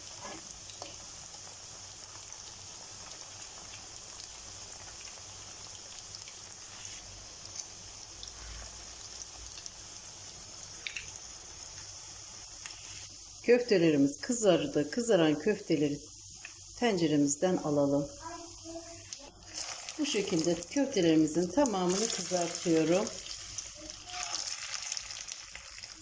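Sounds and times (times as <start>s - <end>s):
oil crackling and popping: 0.0s - 6.8s, 10.7s - 13.1s, 19.0s - 20.8s, 21.5s - 26.0s
food sizzling in hot oil: 0.0s - 26.0s.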